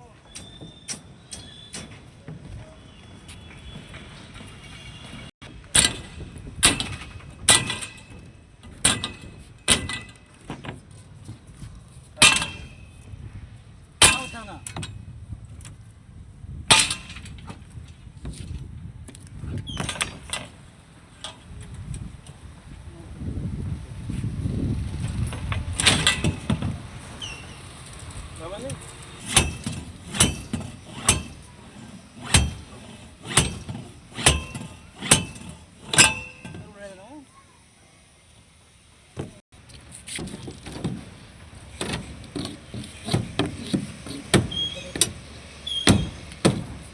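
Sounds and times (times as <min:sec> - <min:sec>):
hammer striking metal: 0:12.2 - 0:13.0, 0:14.0 - 0:14.8, 0:29.2 - 0:36.7.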